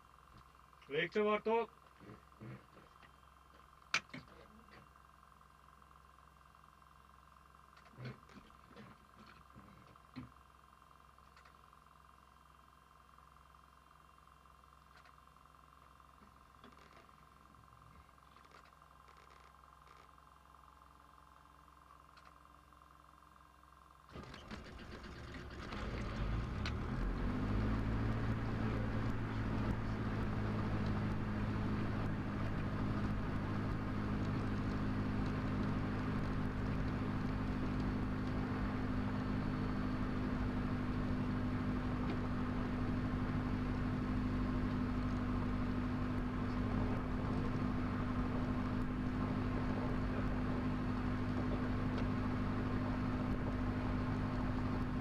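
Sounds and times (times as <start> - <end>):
aircraft engine starting and idling: 24.1 - 55.0.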